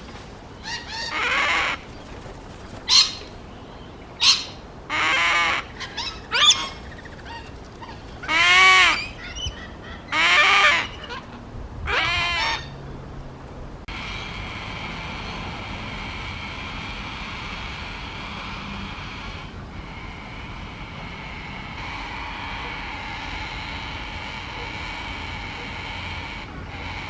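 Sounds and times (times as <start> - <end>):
baby bird begging calls: 4.2 - 7.4.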